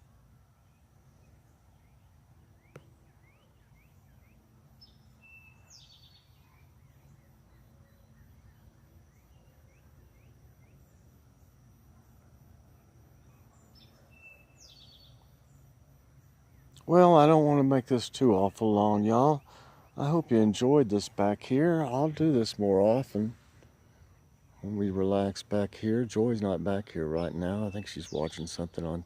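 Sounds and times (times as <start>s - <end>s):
small bird chirps: 0.6s - 11.5s, 12.7s - 16.8s
bird calling: 1.7s - 11.0s, 13.2s - 15.6s, 18.2s - 25.0s, 26.1s - 29.0s.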